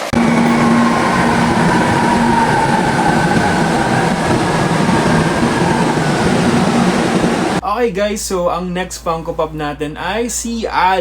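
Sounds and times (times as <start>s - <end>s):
faint falling whining tones: 0.0s - 7.6s
moving vehicle rumble: 0.0s - 7.6s.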